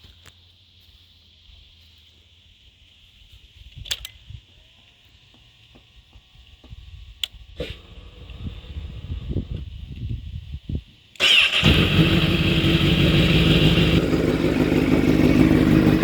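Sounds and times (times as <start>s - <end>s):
motorcycle engine cranking: 11.2s - 16.0s.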